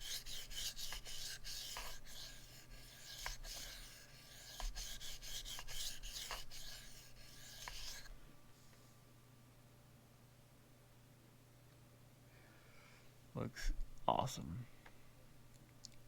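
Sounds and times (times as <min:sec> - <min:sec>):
knife scraping on whetstone: 0:00.0 - 0:08.1.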